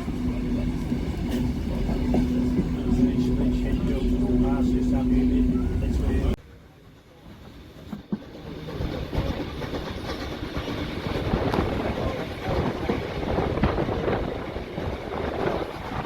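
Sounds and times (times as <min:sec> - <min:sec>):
train wheels clicking on rails: 0:07.6 - 0:16.0.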